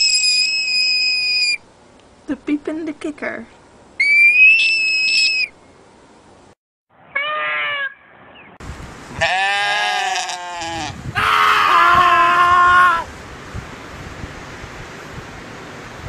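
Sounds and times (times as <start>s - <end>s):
high whistle-like tone: 0.0s - 1.6s, 4.0s - 5.5s
goats screaming: 7.1s - 8.0s, 9.2s - 13.1s.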